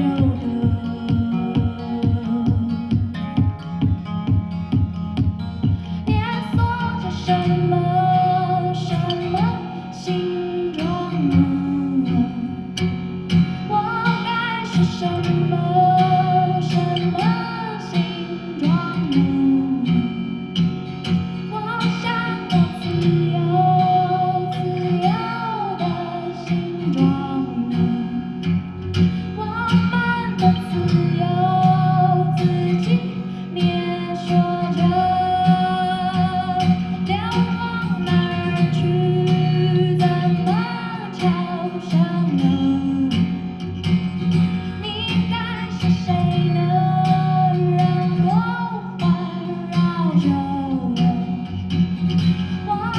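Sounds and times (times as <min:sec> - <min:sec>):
guitar accompaniment: 0:00.0 - 0:52.9
woman singing: 0:00.0 - 0:52.9.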